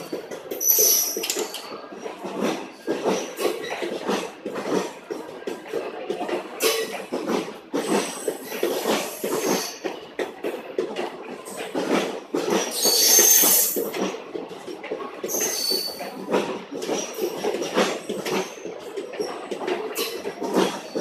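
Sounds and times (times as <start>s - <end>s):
wheels squealing on rail: 0.0s - 2.0s, 7.8s - 10.0s, 12.5s - 13.9s, 15.2s - 17.1s
train wheels clattering on track: 0.0s - 21.0s.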